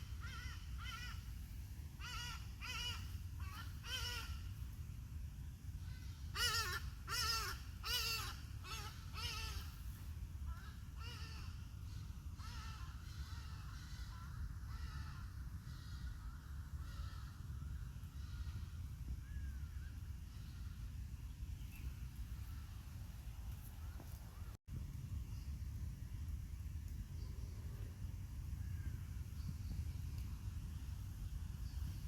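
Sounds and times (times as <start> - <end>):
steady low rumble: 8.4 - 32.0.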